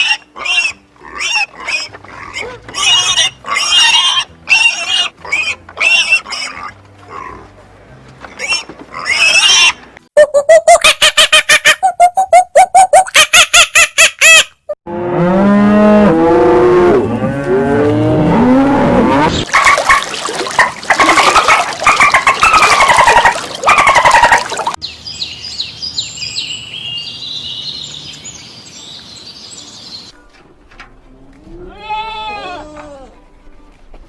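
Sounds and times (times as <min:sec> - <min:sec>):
small birds chirping and trilling: 0:24.8 - 0:30.2.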